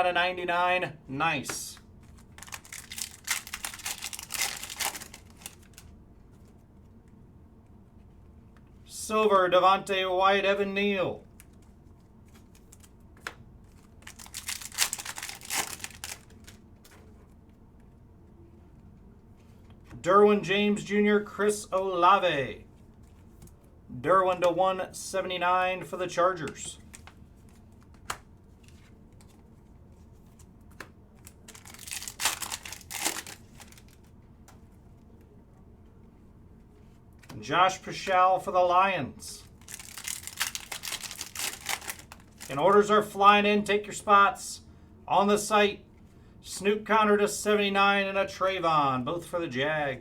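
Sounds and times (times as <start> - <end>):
plastic packaging crinkling: 2.0 - 5.9, 13.7 - 16.6, 31.2 - 34.1, 39.5 - 42.9.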